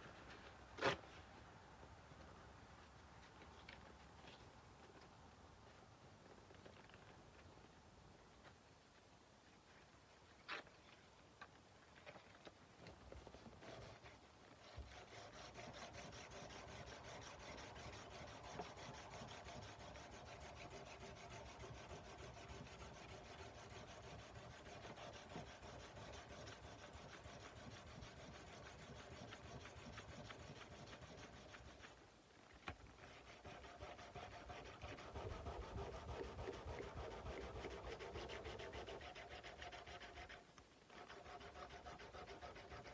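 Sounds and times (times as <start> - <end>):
sandpaper rubbing on steel blade: 13.2 - 32.0, 33.0 - 42.9.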